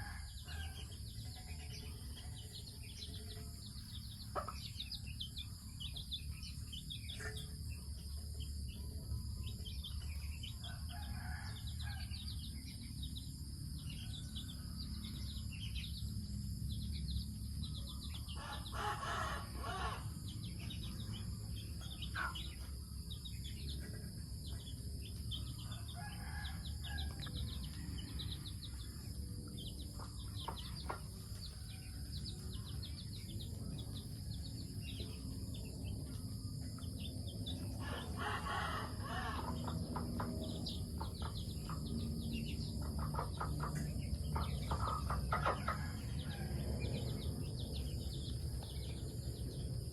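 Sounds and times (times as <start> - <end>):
constant low rumble: 0.0 - 49.9
small birds chirping: 0.0 - 49.9
chickens clucking: 1.3 - 5.6, 21.7 - 22.8, 29.8 - 31.7, 37.5 - 46.4
rooster crowing: 18.4 - 20.1, 25.6 - 27.6, 37.8 - 40.8.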